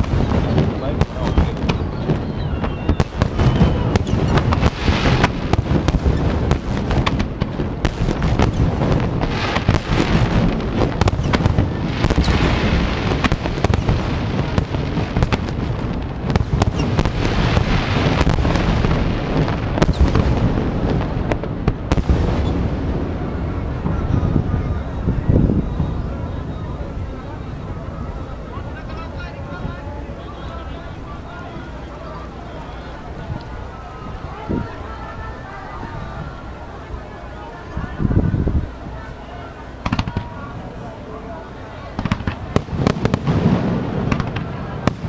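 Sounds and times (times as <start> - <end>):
fireworks booming and cracking: 0.0 - 27.8, 39.8 - 40.8, 41.8 - 45.0.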